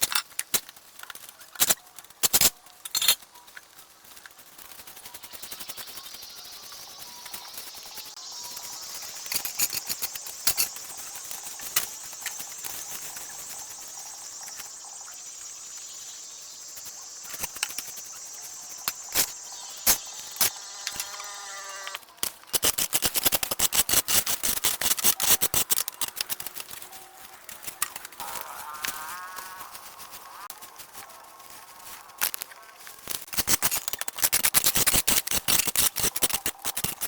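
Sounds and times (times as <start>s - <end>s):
steady high hiss: 5.1s - 22.1s, 26.7s - 33.6s.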